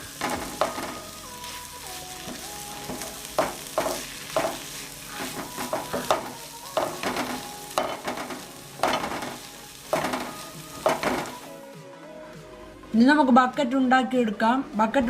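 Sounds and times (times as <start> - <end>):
meat sizzling in a pan: 0.0 - 11.5.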